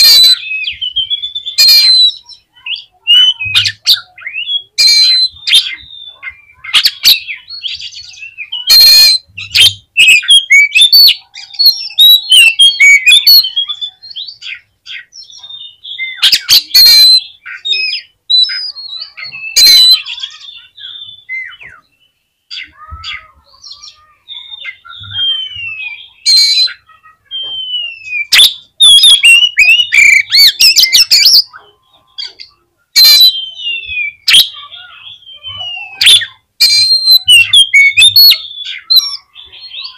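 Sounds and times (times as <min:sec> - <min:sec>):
bird harsh rasping calls: 0:00.0 - 0:21.9, 0:22.5 - 0:39.9
bird whistled song and trills: 0:00.0 - 0:39.9.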